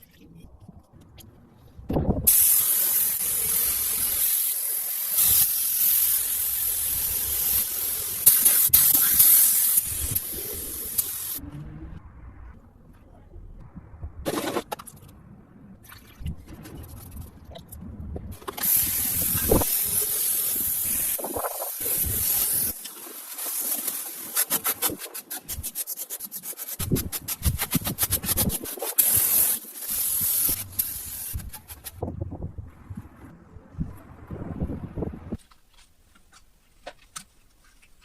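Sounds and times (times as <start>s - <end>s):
high-pitched spray hiss: 2.3s - 11.4s, 18.5s - 25.0s, 28.2s - 31.9s.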